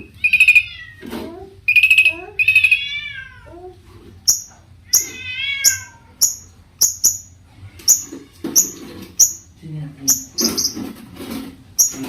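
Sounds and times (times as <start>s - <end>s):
bird singing sharp high chips: 4.3s - 7.3s, 7.9s - 9.5s, 11.8s - 12.0s.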